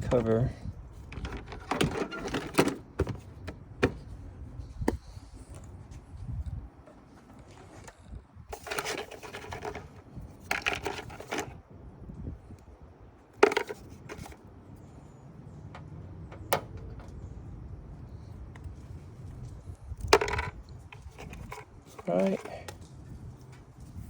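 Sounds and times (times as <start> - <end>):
plastic scraping and rattling: 1.0 - 4.2, 6.8 - 11.6, 13.4 - 14.4, 19.4 - 22.9.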